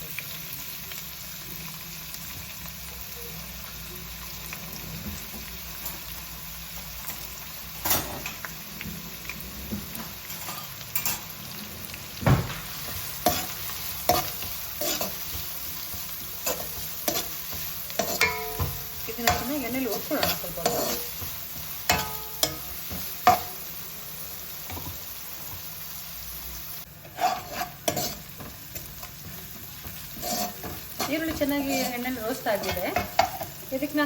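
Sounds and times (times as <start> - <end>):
onion sizzling in hot oil: 0.0 - 34.0
spoon scraping a pan: 9.7 - 11.6, 12.8 - 23.6, 27.0 - 33.7.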